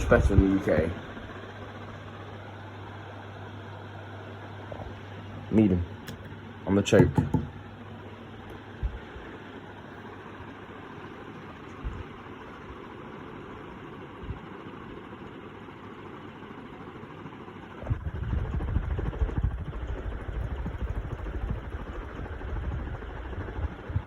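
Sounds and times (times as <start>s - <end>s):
ceiling fan running: 0.0s - 24.0s
light knocks: 7.0s - 7.6s
uneven low rumble: 17.8s - 24.0s.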